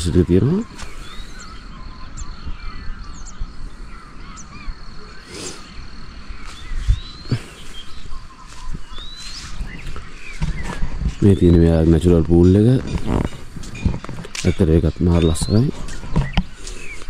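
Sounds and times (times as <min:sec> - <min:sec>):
birds chirping and calling: 0:00.0 - 0:17.0
harsh caw-like bird call: 0:00.7 - 0:05.8.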